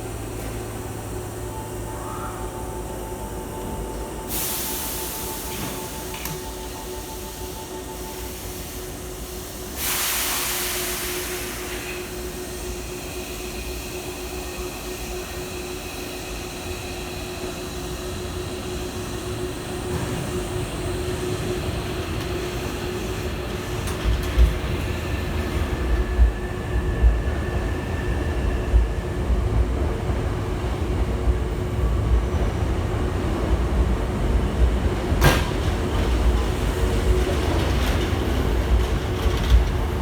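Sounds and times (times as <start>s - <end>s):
electric train motor whine: 0.0s - 9.8s
air hiss: 4.3s - 13.6s.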